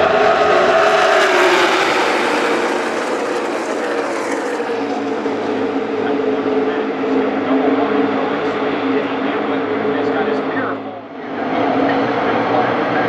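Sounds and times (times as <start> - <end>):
race cars passing at full throttle: 0.0 - 13.0
steady engine drone: 0.0 - 13.0.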